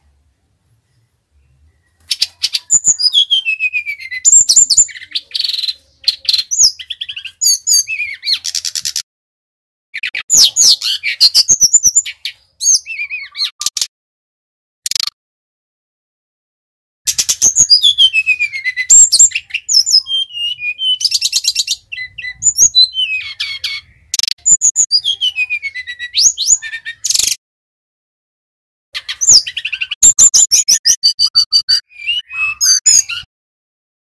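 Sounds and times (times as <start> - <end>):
bird singing whistles and trills: 0.9 - 9.0, 10.0 - 13.7, 17.1 - 27.4, 29.0 - 33.3.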